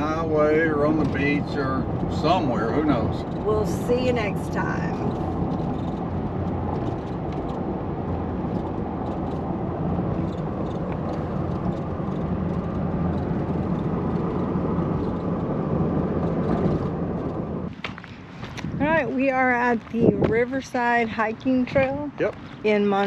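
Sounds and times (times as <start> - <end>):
car road and engine noise: 0.0 - 23.0.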